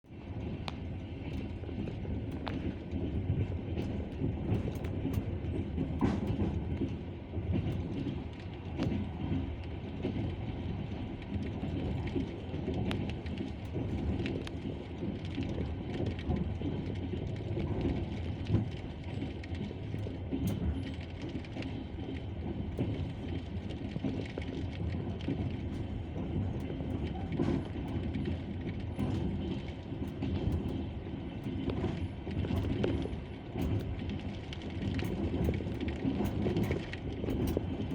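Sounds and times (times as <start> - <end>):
train wheels clickety-clack: 0.1 - 37.9.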